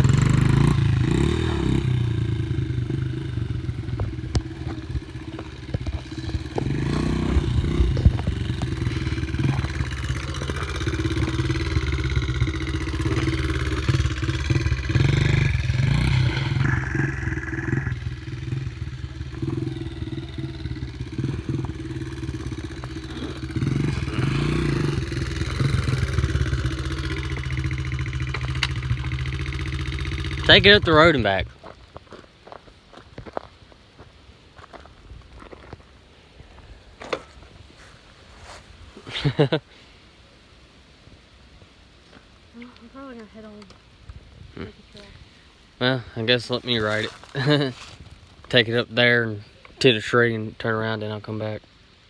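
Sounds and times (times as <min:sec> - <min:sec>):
dirt bike engine revving: 0:00.0 - 0:31.5, 0:37.1 - 0:39.6, 0:46.2 - 0:50.1.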